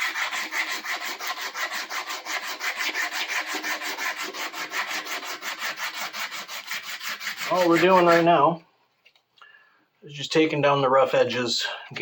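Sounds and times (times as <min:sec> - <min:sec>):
sandpaper rubbing wood: 0:00.0 - 0:08.5.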